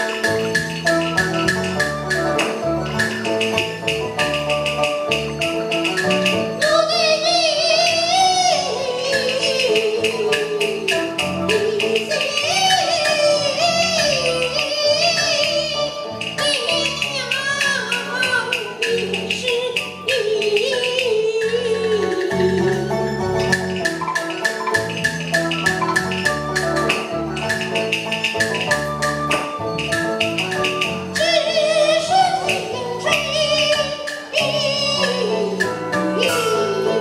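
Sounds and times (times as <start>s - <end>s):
instrumental backing band: 0.0s - 37.0s
opera singing: 6.6s - 23.2s, 31.1s - 37.0s
percussion clicks: 23.4s - 31.3s.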